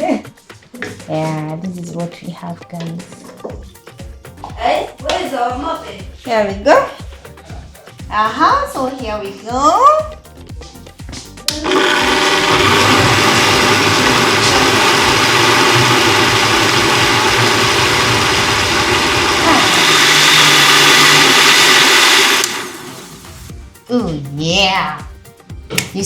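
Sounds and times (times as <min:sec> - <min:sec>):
electric blender running: 0:11.5 - 0:23.5.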